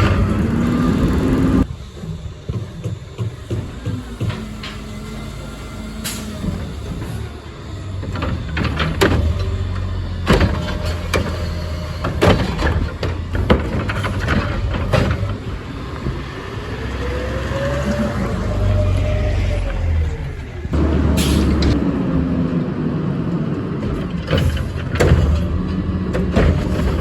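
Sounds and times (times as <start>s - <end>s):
rising engine whine: 0.0s - 12.1s, 15.3s - 24.1s
garbage truck idling: 0.0s - 21.9s
loud metal bangs and clanks: 8.0s - 15.6s, 23.8s - 27.0s.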